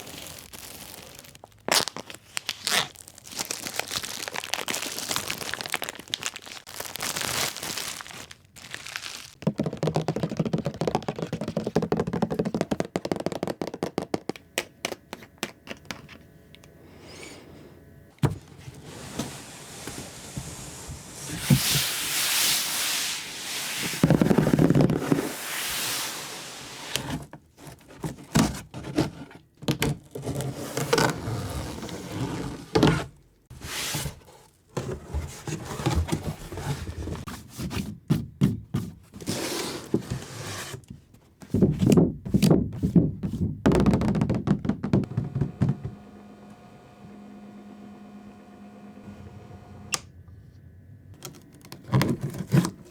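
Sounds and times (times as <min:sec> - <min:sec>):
plastic and cardboard crinkling: 0:00.0 - 0:16.2, 0:18.2 - 0:31.2, 0:51.2 - 0:52.9
packaging scrapes and thunks: 0:18.2 - 0:44.0, 0:51.2 - 0:52.9.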